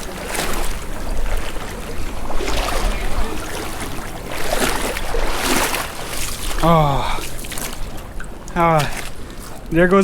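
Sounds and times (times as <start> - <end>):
feet splashing through water: 0.0 - 10.0.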